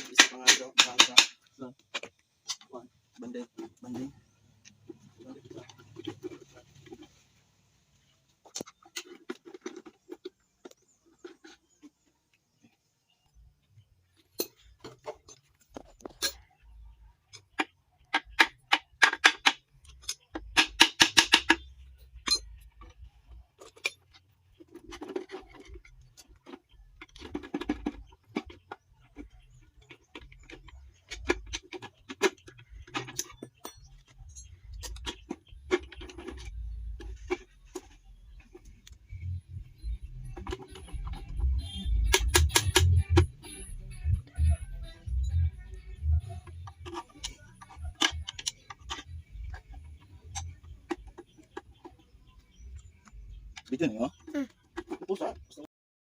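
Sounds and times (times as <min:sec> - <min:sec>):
metallic clicks of tools: 0:17.3 - 0:23.0.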